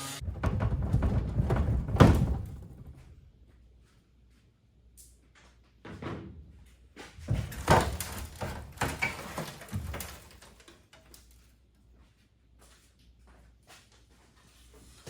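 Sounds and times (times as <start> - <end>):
knocks and clanks on metal boat: 0.2 - 3.2.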